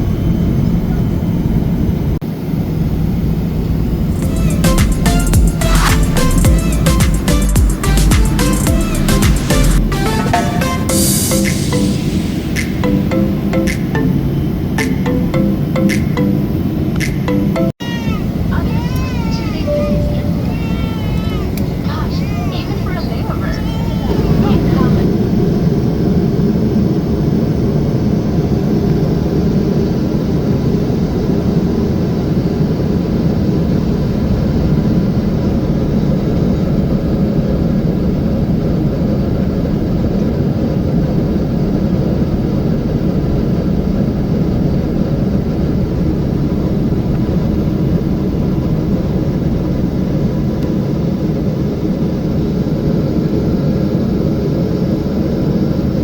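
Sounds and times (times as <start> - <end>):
jet airliner cabin noise: 0.0 - 56.0.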